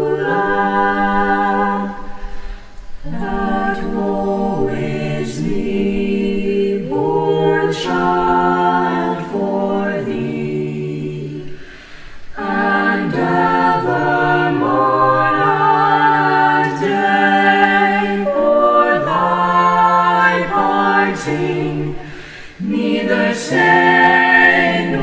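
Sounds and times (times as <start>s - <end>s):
choir singing a cappella: 0.0s - 25.0s.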